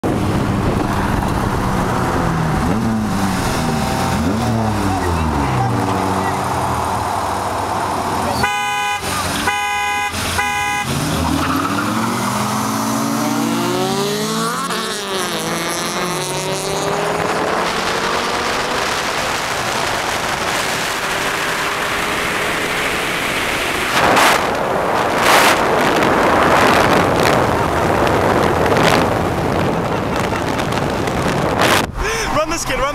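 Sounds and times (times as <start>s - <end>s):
car engines accelerating hard: 0.0s - 32.9s
car horn honks: 8.3s - 11.2s
steady rushing noise: 16.5s - 32.9s.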